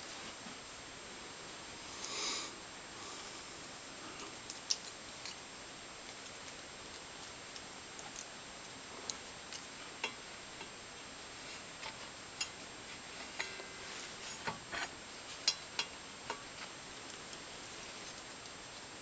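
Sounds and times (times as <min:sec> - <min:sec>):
light clicks and taps of tools: 0:15.4 - 0:18.6.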